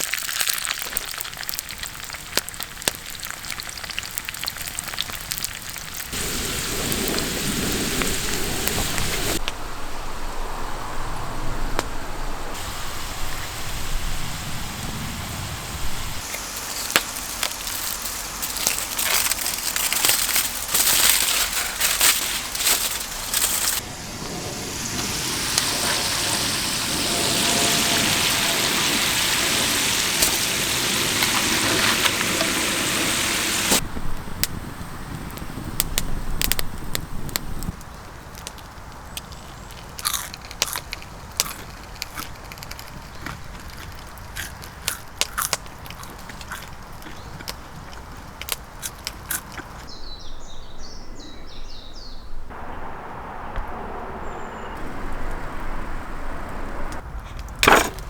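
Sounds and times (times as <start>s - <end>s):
campfire crackling and popping: 0.0s - 9.6s, 12.6s - 49.9s
steady hiss: 6.0s - 40.0s, 52.5s - 57.8s.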